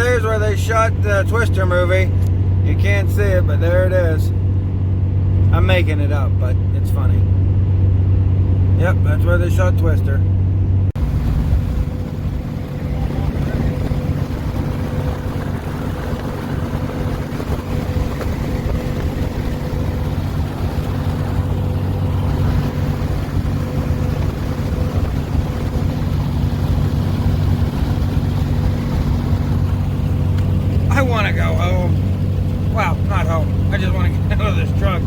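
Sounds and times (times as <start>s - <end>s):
road noise inside cab: 0.0s - 35.0s
truck engine drone: 0.0s - 35.0s
faint whine: 8.8s - 35.0s.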